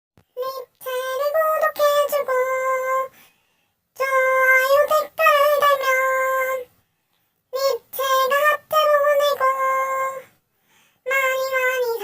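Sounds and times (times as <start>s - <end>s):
high-pitched voice singing: 0.3s - 3.1s, 4.0s - 6.7s, 7.5s - 10.4s, 11.0s - 12.0s.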